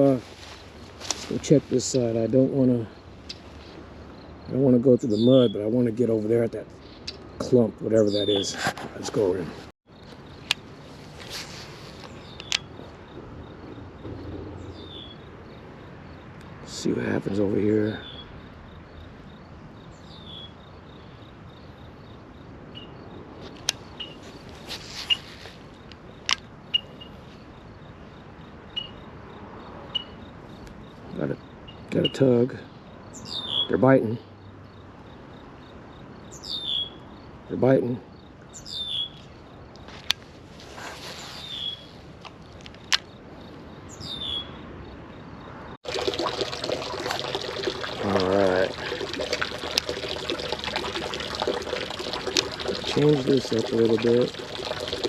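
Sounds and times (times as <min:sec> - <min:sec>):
insects chirping: 0:00.0 - 0:55.0
trickling pouring water: 0:45.8 - 0:55.0.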